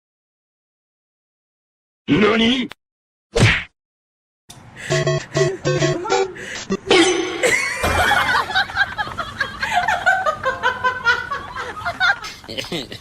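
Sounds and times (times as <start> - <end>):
person laughing: 5.2 - 13.0.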